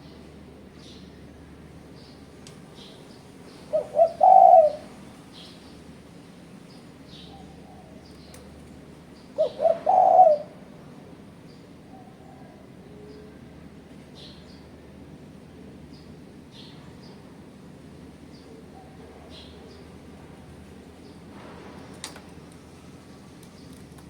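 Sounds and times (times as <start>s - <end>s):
dove cooing: 3.5s - 5.2s, 9.3s - 10.7s.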